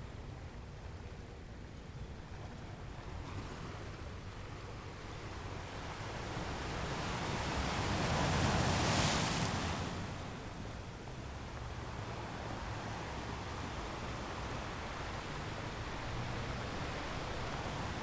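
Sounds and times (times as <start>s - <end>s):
sea waves washing along ship: 6.2s - 18.0s.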